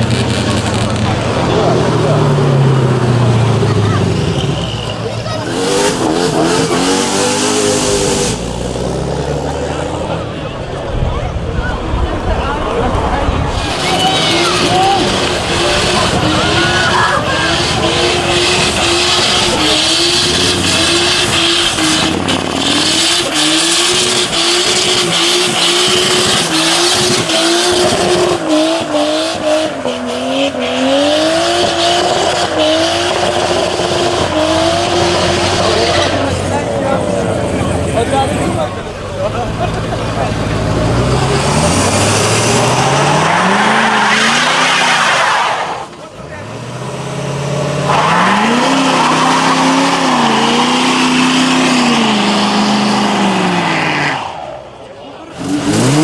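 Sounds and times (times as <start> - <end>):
tyres squealing: 0.0 - 8.7, 12.9 - 54.5
car engine at high revs: 0.0 - 56.0.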